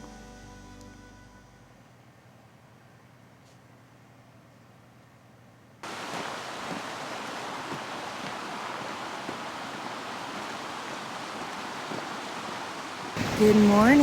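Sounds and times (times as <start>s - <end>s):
river water rushing: 5.8s - 14.0s.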